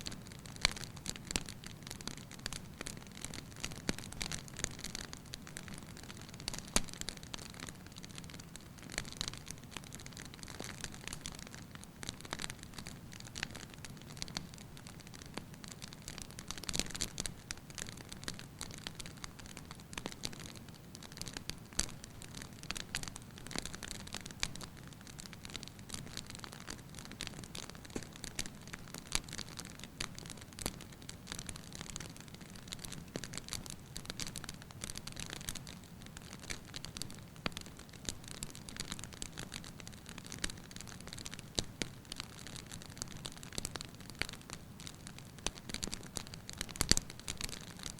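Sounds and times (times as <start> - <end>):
wood crackling and popping: 0.0 - 47.9
fire burning: 18.6 - 47.9.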